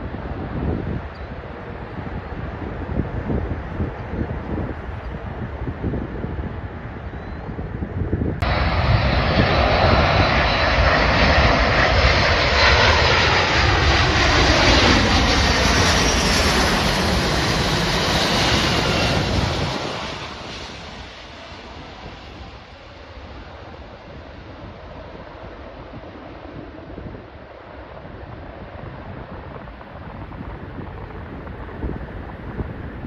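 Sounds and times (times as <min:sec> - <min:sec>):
aircraft engine roar passing: 0:00.0 - 0:33.0.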